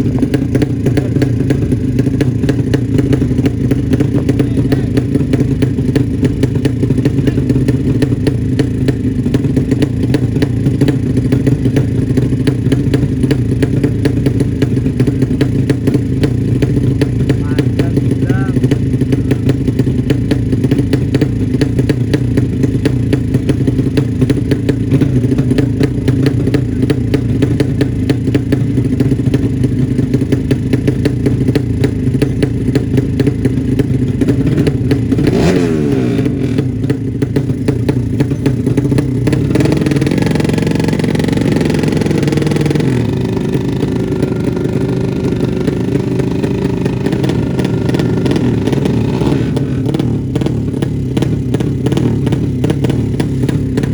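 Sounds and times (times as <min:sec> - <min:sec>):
motorcycle engine running loud: 0:00.0 - 0:53.9.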